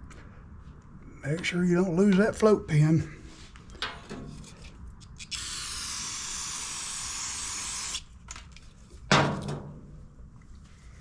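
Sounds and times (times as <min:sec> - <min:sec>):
spray cleaner hissing: 0:05.4 - 0:08.0.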